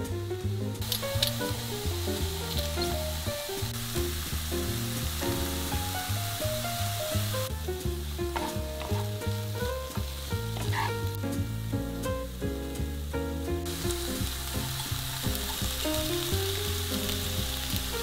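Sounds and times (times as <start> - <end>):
background music with bass line: 0.0 - 18.0
mushrooms and onions sizzling: 0.0 - 18.0
wooden spatula stirring: 8.2 - 11.2.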